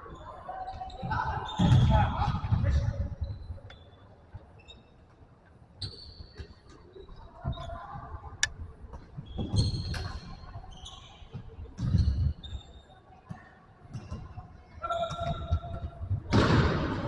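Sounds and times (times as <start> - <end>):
shoe squeaks on court: 4.6 - 5.2
ball strikes and thuds: 15.2 - 17.0.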